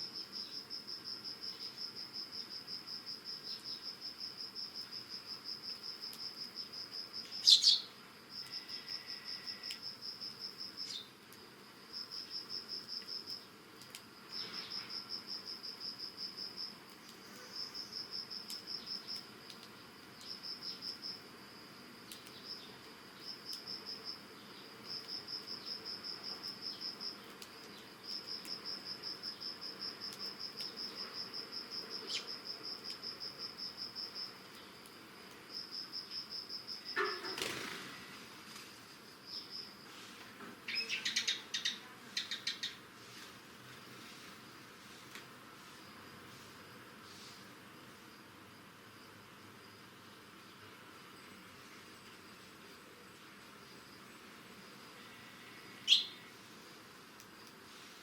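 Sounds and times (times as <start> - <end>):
cricket chirping trills: 0.0 - 58.0
sparrow chirp: 7.4 - 7.9, 40.7 - 42.8, 55.9 - 56.2.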